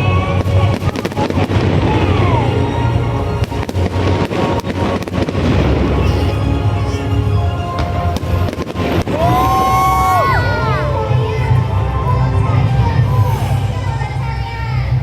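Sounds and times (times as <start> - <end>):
fireworks bangs and crackles: 0.0 - 6.4, 7.5 - 9.7
loud music with deep bass: 0.0 - 15.0.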